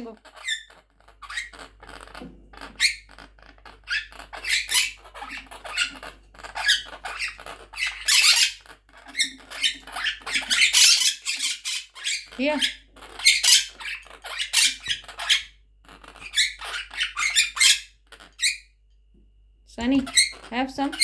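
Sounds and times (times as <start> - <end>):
parrot squawking: 0.0 - 18.7, 19.9 - 21.0
parrot chirping: 0.0 - 18.8, 19.9 - 21.0.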